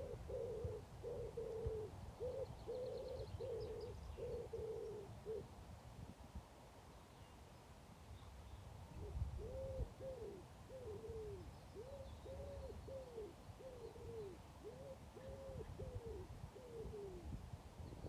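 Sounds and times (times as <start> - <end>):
pigeon cooing: 0.0 - 5.5, 9.0 - 17.3.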